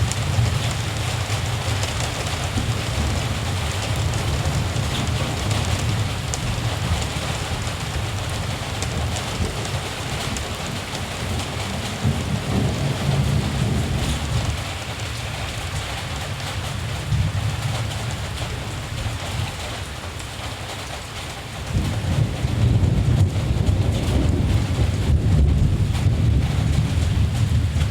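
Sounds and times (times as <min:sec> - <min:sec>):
distant thunder rumbling: 0:00.0 - 0:19.6, 0:21.7 - 0:27.9
steady rain: 0:00.0 - 0:27.9.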